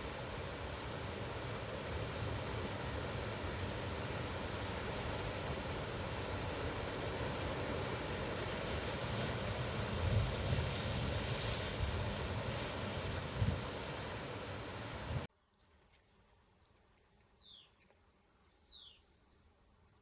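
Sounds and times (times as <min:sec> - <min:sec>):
ocean surf washing on beach: 0:00.0 - 0:15.3
wind rumbling on microphone: 0:01.2 - 0:15.3
wave breaking: 0:03.7 - 0:15.3.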